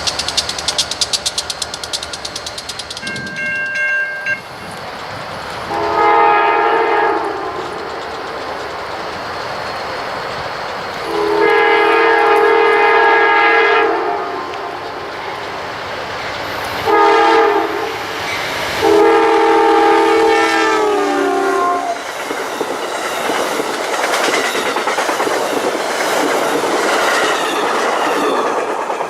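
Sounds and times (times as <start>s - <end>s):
rail noise: 0.0s - 29.0s
train wheels clacking on rails: 0.0s - 29.0s
locomotive air horn: 5.7s - 7.7s, 11.0s - 14.8s, 16.8s - 18.0s, 18.8s - 22.0s.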